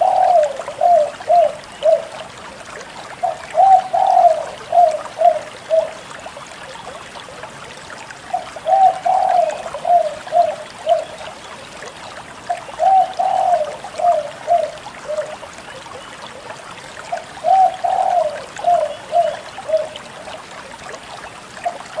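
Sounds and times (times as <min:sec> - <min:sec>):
dove cooing: 0:00.0 - 0:02.2, 0:03.2 - 0:06.1, 0:08.3 - 0:11.3, 0:12.7 - 0:15.6, 0:17.1 - 0:20.1.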